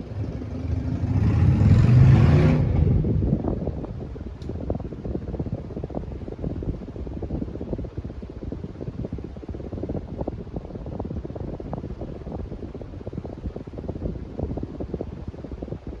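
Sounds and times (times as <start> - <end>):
ceiling fan air rumble: 0.0 - 16.0.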